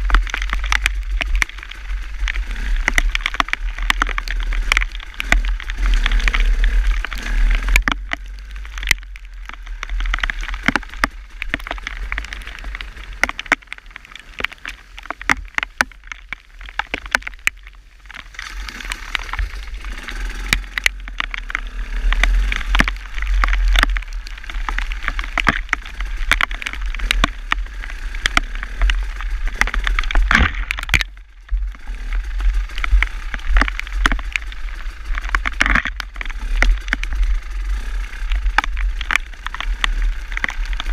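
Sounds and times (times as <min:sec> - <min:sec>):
sharp clicks and crackles: 0:00.0 - 0:40.9
wind rumbling on microphone: 0:00.0 - 0:40.9.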